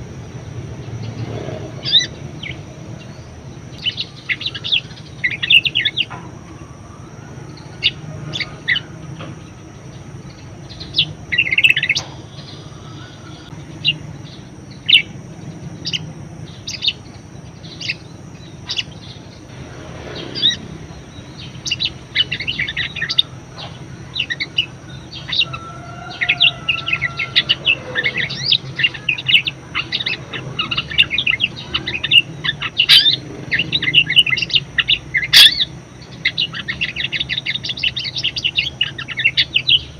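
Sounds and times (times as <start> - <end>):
low steady hum: 0.0 - 39.9
budgerigar chattering and warbling: 1.4 - 2.6, 21.5 - 39.9.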